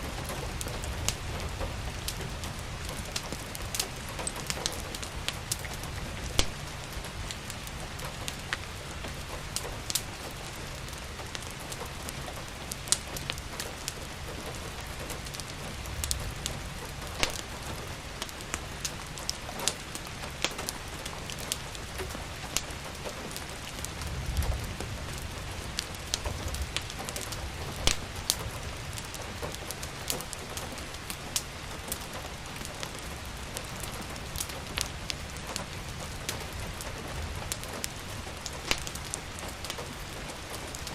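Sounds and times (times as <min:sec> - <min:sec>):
steady rain: 0:00.0 - 0:40.9
wood fire crackling: 0:00.0 - 0:40.9.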